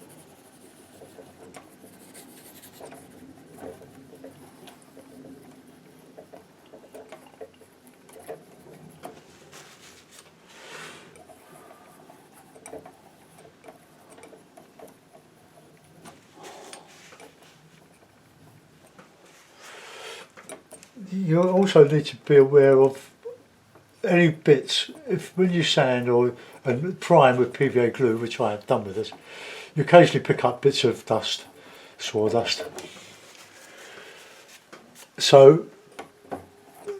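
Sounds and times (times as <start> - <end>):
palette knife scraping paint: 0.0 - 7.5, 32.5 - 35.2.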